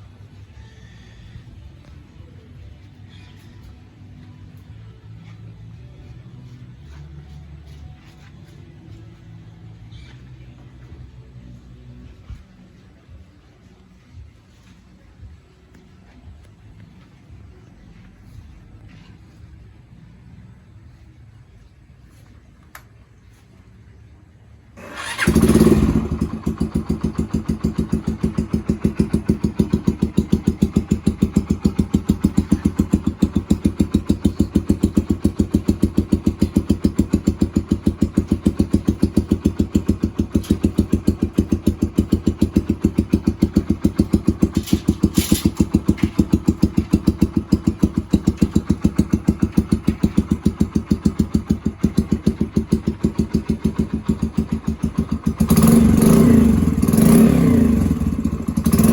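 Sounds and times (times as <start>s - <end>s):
motorcycle engine idling: 24.8s - 58.9s.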